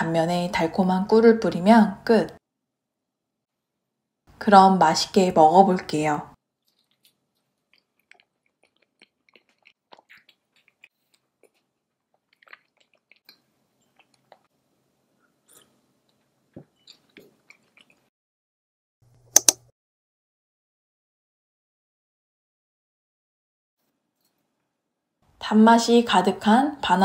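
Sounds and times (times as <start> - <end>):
chewing soft sandwich: 6.6 - 18.1
wet mouth clicks: 6.7 - 14.5.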